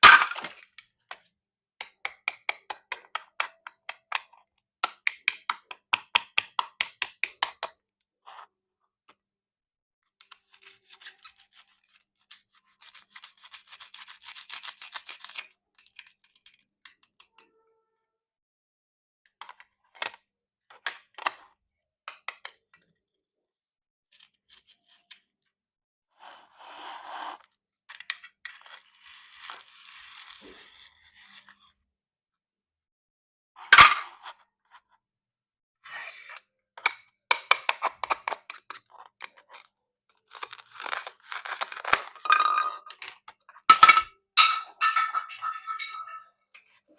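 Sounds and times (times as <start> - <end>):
plastic toy crackling scraping: 10.3 - 16.3, 28.5 - 31.8, 38.6 - 42.5.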